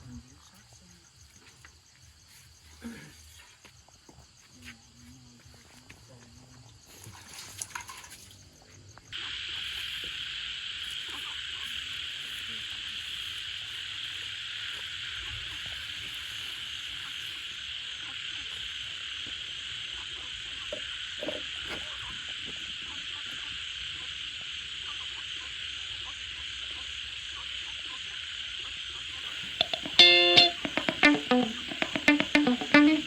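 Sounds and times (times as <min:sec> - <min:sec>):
frogs calling: 0:08.8 - 0:33.0
loud guitar music: 0:29.4 - 0:33.0.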